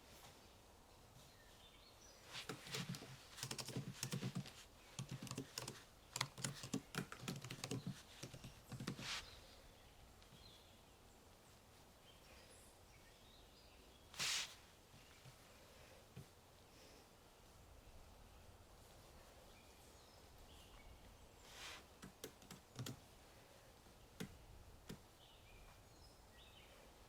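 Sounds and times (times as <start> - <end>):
typing on computer keyboard: 2.4 - 9.0, 22.0 - 23.0.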